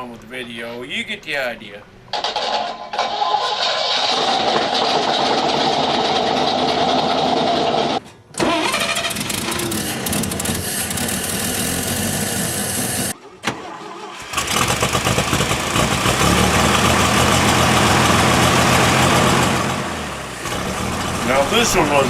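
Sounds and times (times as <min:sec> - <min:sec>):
engine starting and running loud: 0:03.1 - 0:22.0
old engine running: 0:04.0 - 0:08.0, 0:08.6 - 0:13.1, 0:14.3 - 0:22.0.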